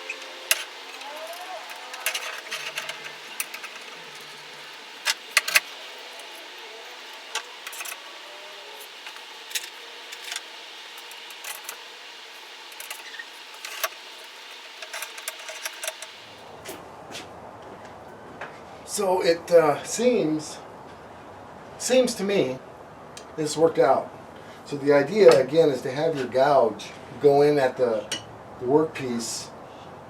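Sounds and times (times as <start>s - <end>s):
metal tools clinking: 0.0s - 6.6s
faint hum: 0.0s - 27.8s.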